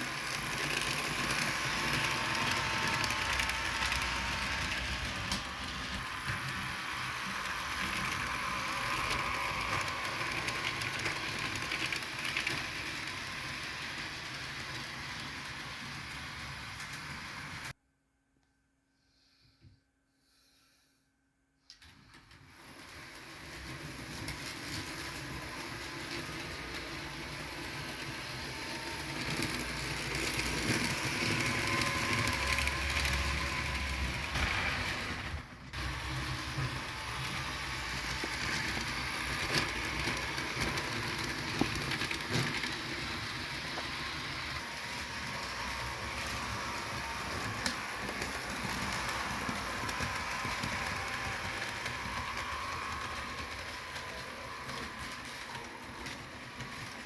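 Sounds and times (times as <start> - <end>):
model train motor whir: 0.0 - 17.7, 21.8 - 57.0
sharp clicks on track: 47.3 - 53.6.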